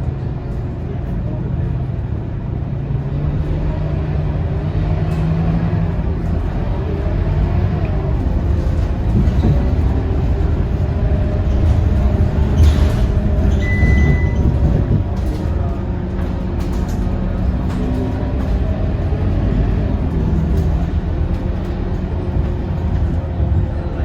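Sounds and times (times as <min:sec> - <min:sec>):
bus diesel engine running: 0:00.0 - 0:24.0
road noise: 0:00.0 - 0:24.0
short high beep: 0:13.6 - 0:14.4.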